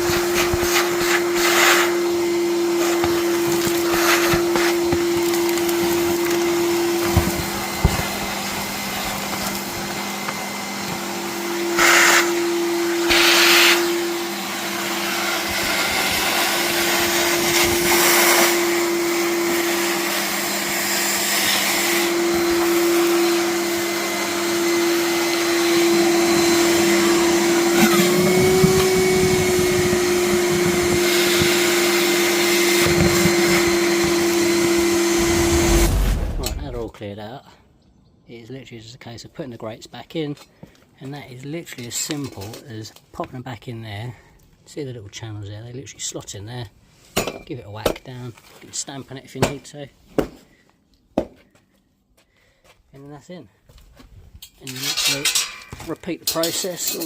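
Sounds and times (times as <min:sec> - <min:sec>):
gutter vacuum motor humming: 0:00.0 - 0:36.8
vacuum sucking mud and leaves: 0:00.0 - 0:36.9.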